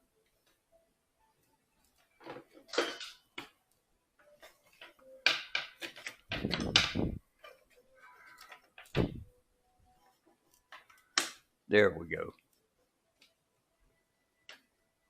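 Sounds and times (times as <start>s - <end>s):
wooden parts clicking and scraping: 4.2s - 9.1s.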